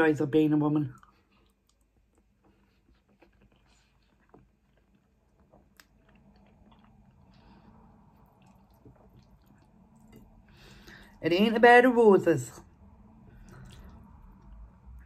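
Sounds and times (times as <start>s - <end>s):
faint chewing with mouth clicks: 0.9s - 11.2s, 12.8s - 15.0s.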